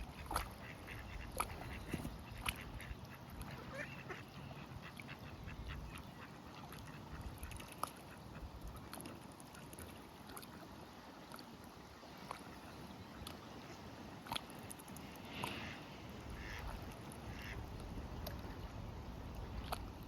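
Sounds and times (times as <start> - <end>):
ducks and geese calling: 0.0 - 7.3, 15.3 - 17.6.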